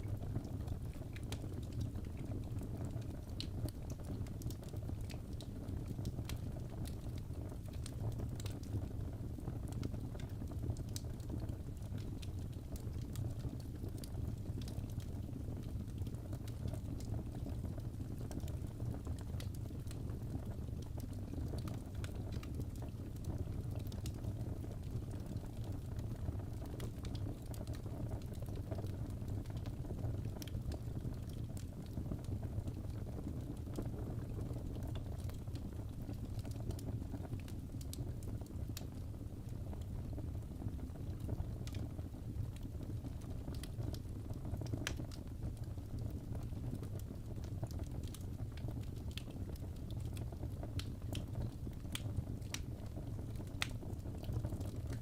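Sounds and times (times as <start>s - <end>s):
fire low rumble: 0.0s - 55.0s
fire pops and crackles: 0.0s - 55.0s.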